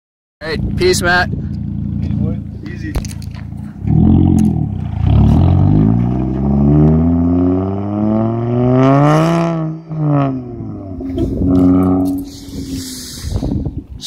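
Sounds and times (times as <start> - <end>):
car engine accelerating: 0.6 - 13.2.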